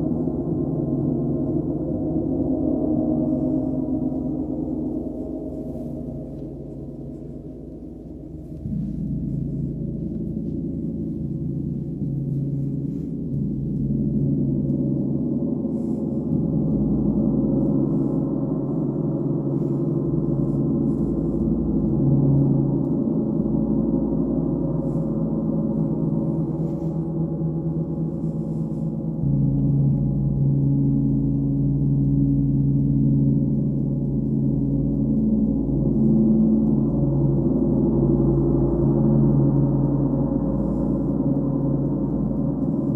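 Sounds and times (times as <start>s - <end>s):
low sustained ringing tones: 0.0s - 42.9s.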